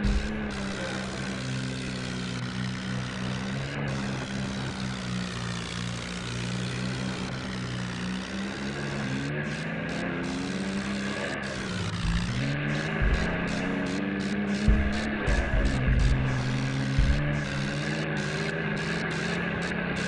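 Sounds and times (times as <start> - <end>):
tractor diesel engine running: 0.0 - 20.0
short thump: 14.7 - 16.4.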